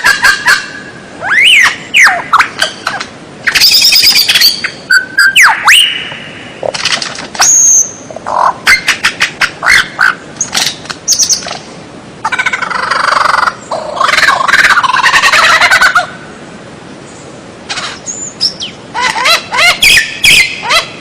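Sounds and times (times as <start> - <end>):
bird singing: 0.0 - 6.7, 10.4 - 11.5, 17.1 - 21.0.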